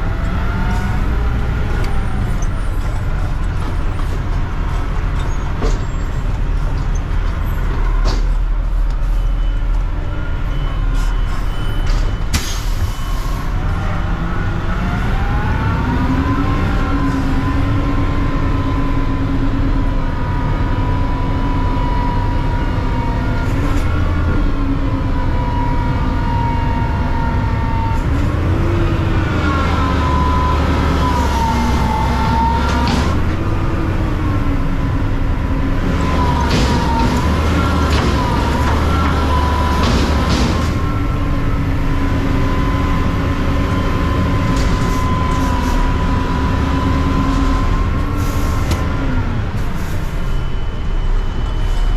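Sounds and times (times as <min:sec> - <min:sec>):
engine whine: 0:00.0 - 0:10.8, 0:11.5 - 0:51.9
truck engine rumbling: 0:00.0 - 0:51.9
knocks and clanks: 0:01.7 - 0:08.6, 0:32.3 - 0:33.6, 0:35.8 - 0:41.2.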